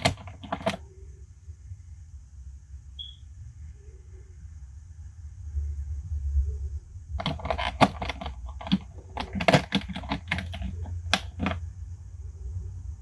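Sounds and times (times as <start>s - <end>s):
packaging clicks and crinkles: 0.0s - 0.8s, 7.2s - 11.6s.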